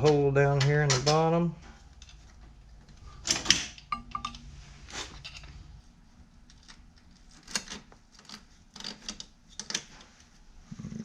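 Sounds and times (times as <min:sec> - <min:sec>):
metal parts and tools clicking: 0:03.2 - 0:05.5, 0:06.5 - 0:10.0.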